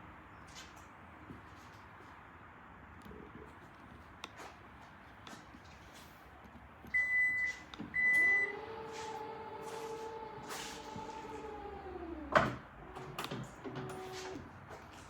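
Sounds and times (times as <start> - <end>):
loud warning beeps: 7.0 - 8.5
tailgate motor whirring: 7.9 - 14.4.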